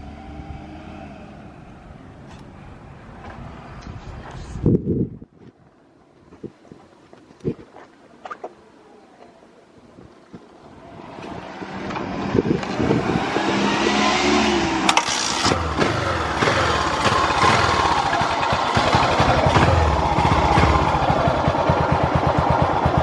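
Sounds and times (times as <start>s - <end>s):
motorcycle engine starting and revving: 10.6s - 23.0s.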